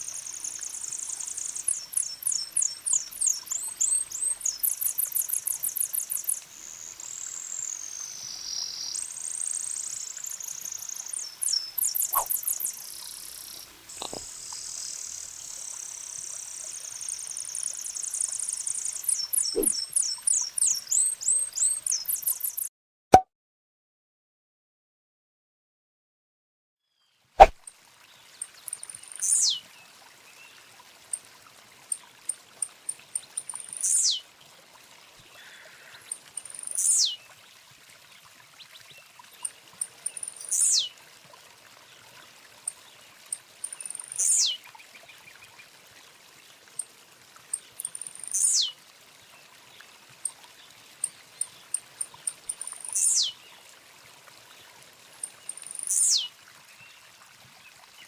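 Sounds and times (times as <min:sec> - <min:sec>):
bird singing: 0:00.0 - 0:15.4, 0:52.5 - 0:53.4
faint steady hiss: 0:00.0 - 0:22.6.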